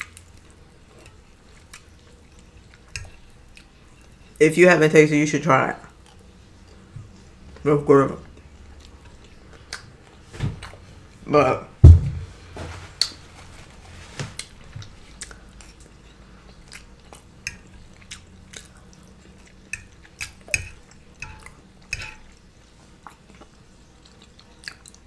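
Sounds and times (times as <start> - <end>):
wet chewing mouth clicks: 14.4 - 21.6.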